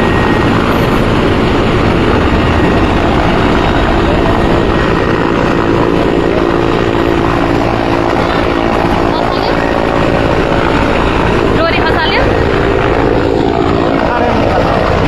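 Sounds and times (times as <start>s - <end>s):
helicopter rotor and engine: 0.0s - 15.0s.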